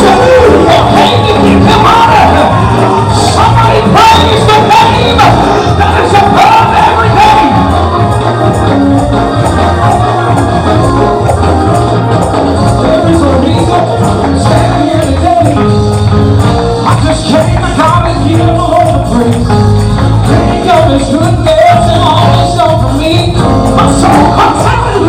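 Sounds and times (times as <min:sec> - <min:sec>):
voices singing: 0:00.0 - 0:15.7
gospel band playing: 0:00.0 - 0:25.0.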